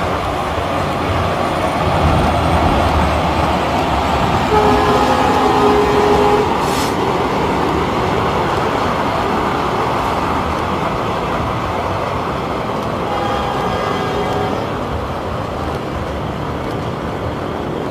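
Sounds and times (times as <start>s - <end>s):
train rumbling: 0.0s - 17.9s
train horn: 4.4s - 7.0s, 13.0s - 14.8s.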